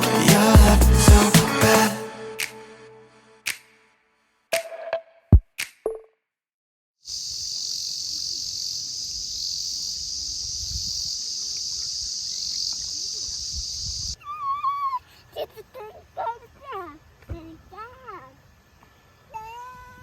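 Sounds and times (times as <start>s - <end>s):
high-pitched insect chorus: 7.1s - 14.2s.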